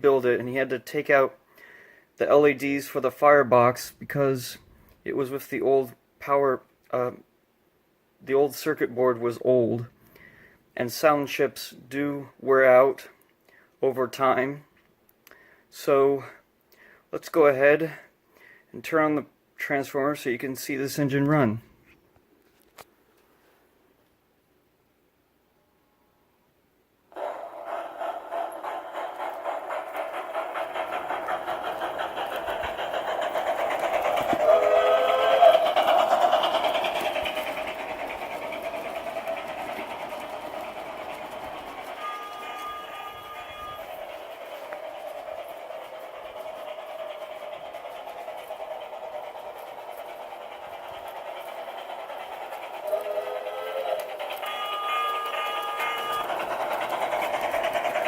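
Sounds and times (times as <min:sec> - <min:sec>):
model steam locomotive running: 0:00.0 - 0:01.4, 0:02.2 - 0:07.2, 0:08.5 - 0:13.1, 0:27.1 - 0:58.0.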